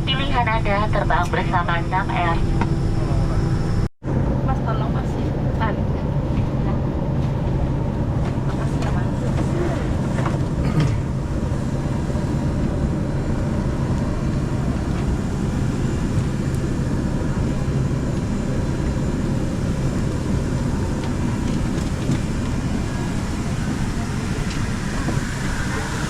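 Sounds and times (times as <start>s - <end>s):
plane engines humming while taxiing: 0.0s - 26.0s.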